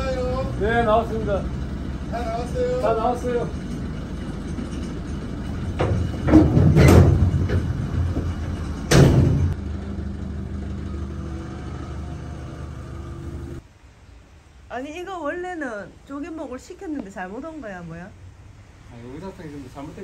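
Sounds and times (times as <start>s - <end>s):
truck engine running: 0.0s - 13.6s
loud clanks and thuds: 3.6s - 9.6s.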